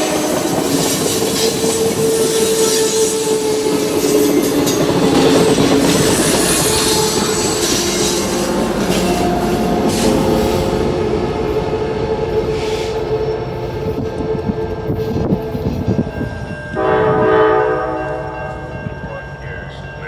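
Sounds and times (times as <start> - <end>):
train air horn blast: 0.0 - 4.4, 5.3 - 15.0, 16.8 - 18.4
train rolling past: 0.0 - 20.0.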